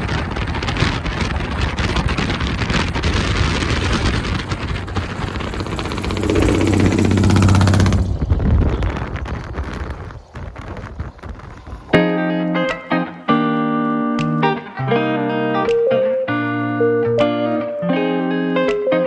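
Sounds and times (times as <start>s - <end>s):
wind buffeting microphone: 0.0s - 12.1s
vehicle engine running: 3.8s - 8.6s.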